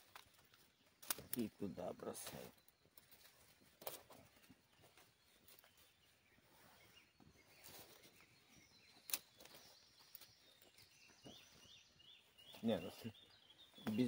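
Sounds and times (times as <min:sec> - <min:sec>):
wood cracking: 0:00.0 - 0:01.6
faint bird chirps: 0:00.0 - 0:14.0.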